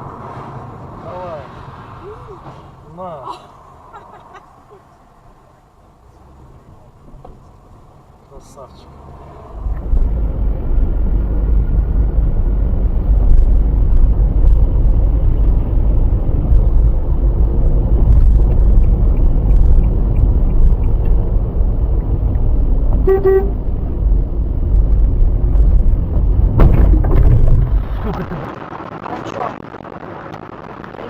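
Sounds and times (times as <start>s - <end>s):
car road rumble: 0.0s - 31.0s
car horn honk: 23.0s - 23.7s.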